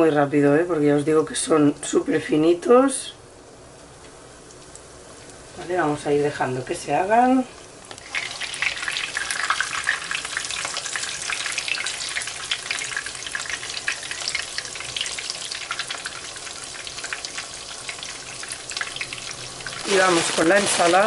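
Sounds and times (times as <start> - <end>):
chicken frying in oil: 4.4 - 21.0.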